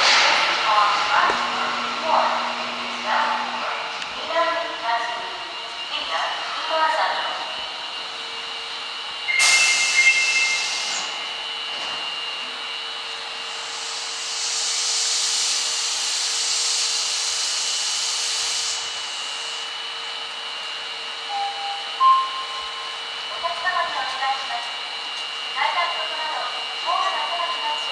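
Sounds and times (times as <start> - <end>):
train hum: 0.0 - 17.5
train air hiss: 9.3 - 11.4, 13.4 - 19.7
rushing hiss: 13.5 - 18.9.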